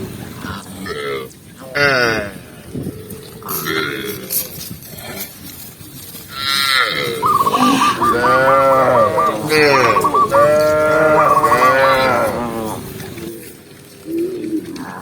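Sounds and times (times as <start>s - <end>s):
cows mooing: 6.4s - 13.3s.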